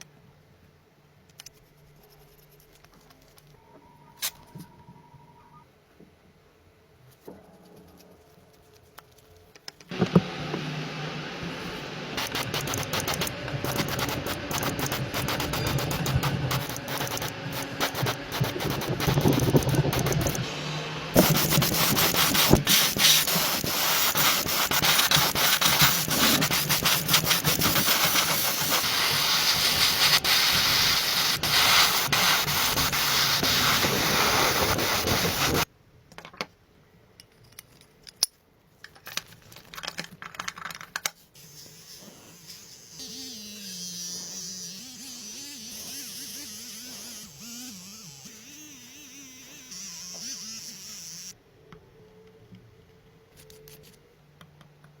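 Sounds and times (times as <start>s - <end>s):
scattered knocks and clicks: 12.2s - 20.4s
abrasive rasping and hissing: 12.2s - 35.7s, 41.4s - 51.4s.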